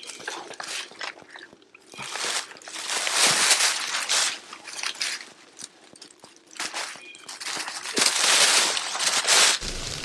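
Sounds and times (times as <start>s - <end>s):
footsteps crunching: 9.6s - 10.0s.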